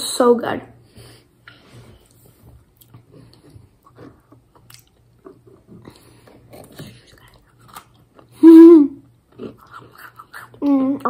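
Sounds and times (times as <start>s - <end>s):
low steady hum: 0.0s - 11.0s
person chewing food: 2.0s - 8.4s, 9.1s - 10.6s.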